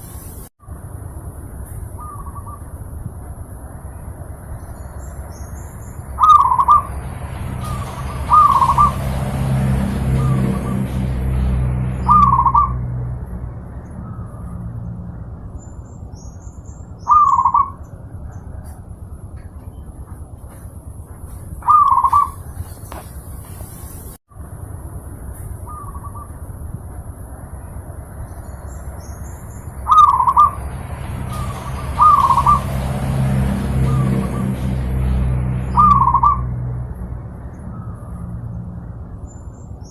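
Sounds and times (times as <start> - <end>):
steady low rumble: 0.0 - 39.9
dove cooing: 6.2 - 6.9, 7.6 - 9.1, 17.1 - 17.8, 21.6 - 22.4, 29.9 - 30.6, 31.4 - 32.7
dove cooing in trilled phrases: 6.2 - 6.9, 7.7 - 9.0, 29.9 - 30.6.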